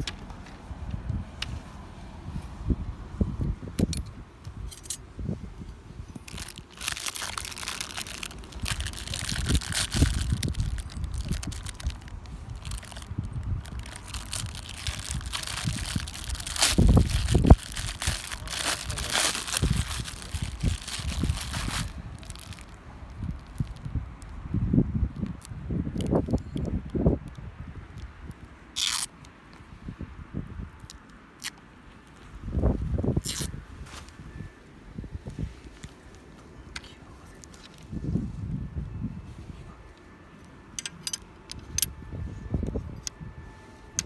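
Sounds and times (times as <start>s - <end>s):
tent fabric rustling: 6.2s - 22.7s, 32.8s - 34.6s.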